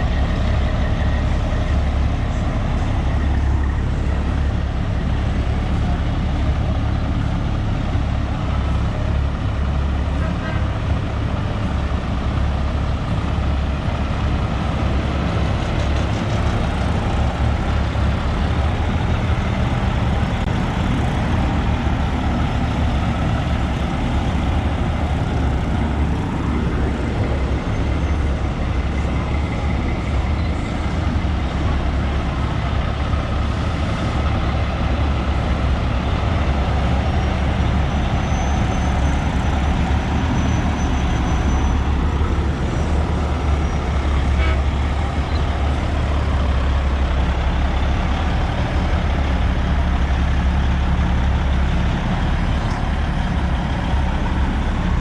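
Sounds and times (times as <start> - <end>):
diesel trucks rumbling: 0.0 - 55.0.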